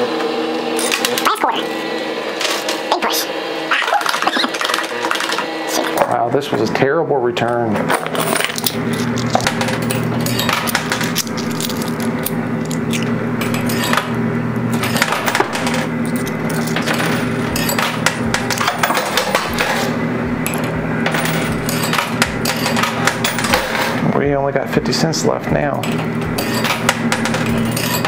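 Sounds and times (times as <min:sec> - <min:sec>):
low arcade hum: 0:00.0 - 0:28.0
coins clinking and clattering: 0:03.8 - 0:05.9, 0:07.9 - 0:14.1, 0:14.7 - 0:24.0, 0:25.8 - 0:28.0.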